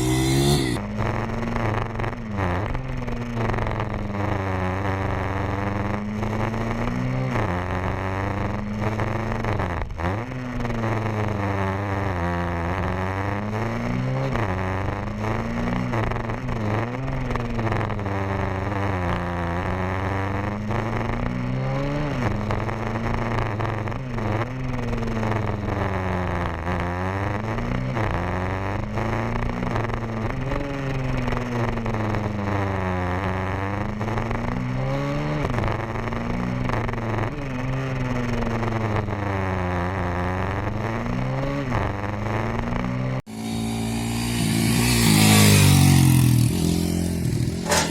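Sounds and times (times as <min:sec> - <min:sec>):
pit bike engine revving: 0:00.0 - 0:00.8, 0:43.3 - 0:47.9.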